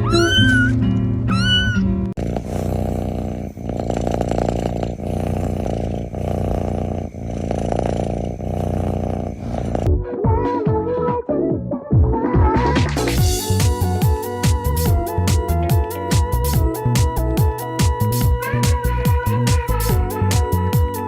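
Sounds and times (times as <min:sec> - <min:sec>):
kitten meowing: 0:00.0 - 0:02.0.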